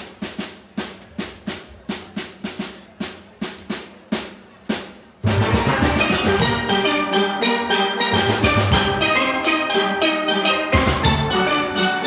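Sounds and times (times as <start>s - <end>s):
steel orchestra playing: 5.2s - 12.0s.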